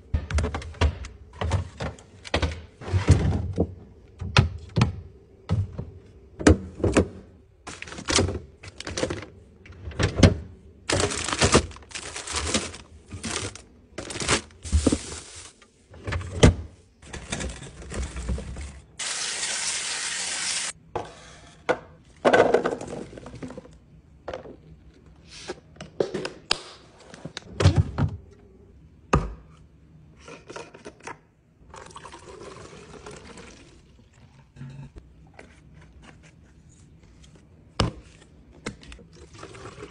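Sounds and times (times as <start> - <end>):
containers and packaging handled: 10.9 - 15.6.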